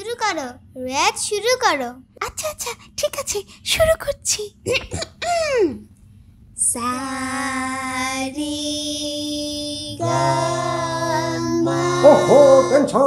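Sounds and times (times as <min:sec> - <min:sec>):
girl singing long held notes: 0:06.6 - 0:13.0.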